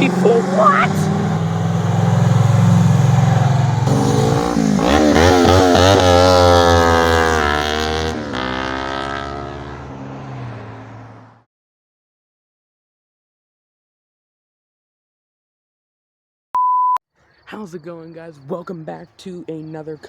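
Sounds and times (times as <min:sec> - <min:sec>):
vehicle engine revving: 0:00.0 - 0:11.4.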